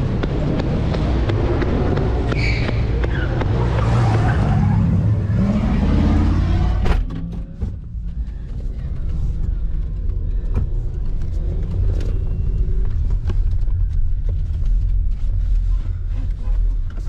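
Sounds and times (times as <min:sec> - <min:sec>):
car engines running loud: 0:00.0 - 0:17.0
engine revving: 0:03.3 - 0:07.1.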